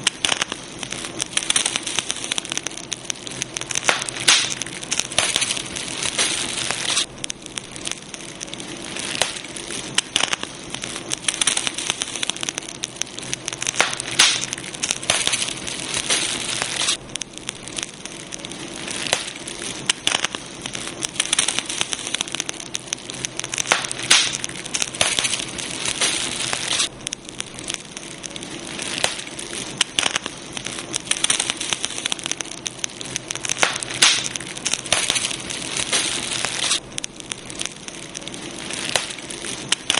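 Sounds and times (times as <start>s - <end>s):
campfire crackling and popping: 0.0s - 39.9s
fire hiss: 0.0s - 39.9s.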